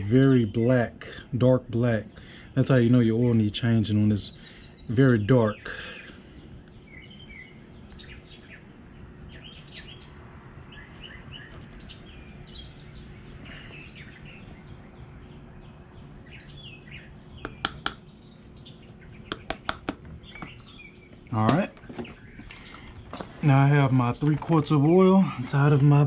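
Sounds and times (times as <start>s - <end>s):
low background hum: 0.0s - 26.0s
small birds chirping: 0.0s - 26.0s
sharp clicks: 18.8s - 20.6s.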